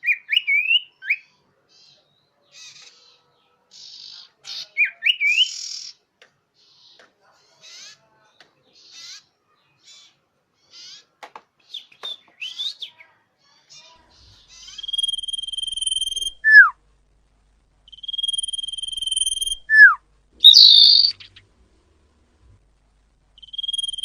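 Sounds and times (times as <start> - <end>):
bird chirps: 14.2 - 16.7, 17.9 - 21.4, 23.4 - 24.0
long high bird whistle: 14.9 - 16.7, 17.9 - 21.2
harsh bird note: 20.4 - 21.3.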